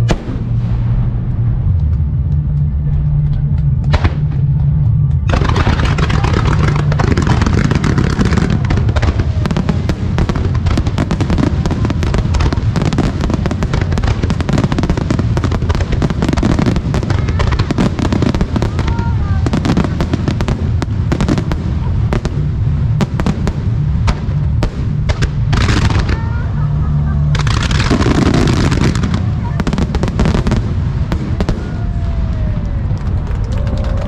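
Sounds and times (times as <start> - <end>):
rapid firework bursts: 5.3 - 31.8.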